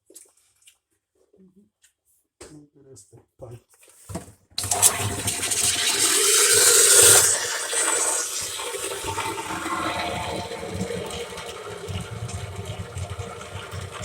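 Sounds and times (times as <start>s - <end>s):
steamer hissing: 4.6s - 14.0s.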